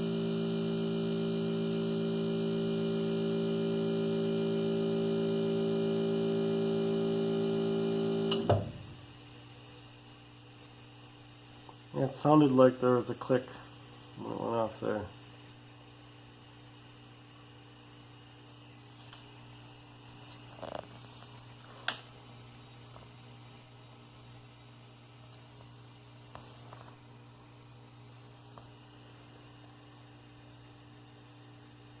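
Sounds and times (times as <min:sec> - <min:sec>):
freeze dryer humming: 0:00.0 - 0:09.8.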